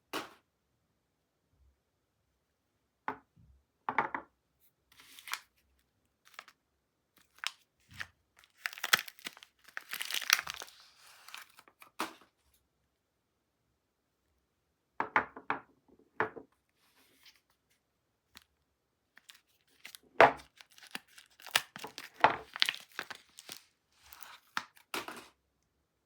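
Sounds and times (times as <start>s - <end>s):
packaging torn and crinkled: 5.0s - 5.5s, 6.2s - 6.5s, 7.2s - 12.0s, 19.2s - 25.2s.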